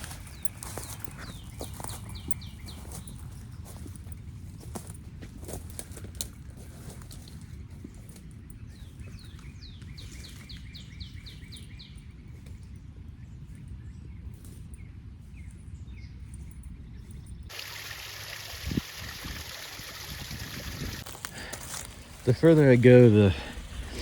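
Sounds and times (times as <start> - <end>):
songbird singing repeated notes: 0.0 - 4.2, 7.5 - 17.6.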